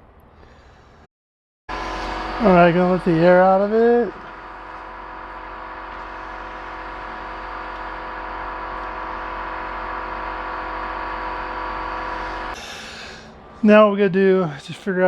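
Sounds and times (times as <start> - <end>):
air hissing from tire valve: 4.3 - 13.4.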